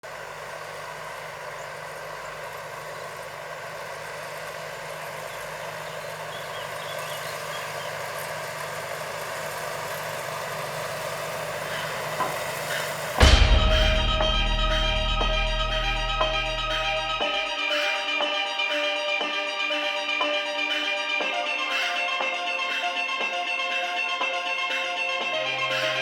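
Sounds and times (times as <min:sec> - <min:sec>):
diesel engine running: 0:00.0 - 0:17.9.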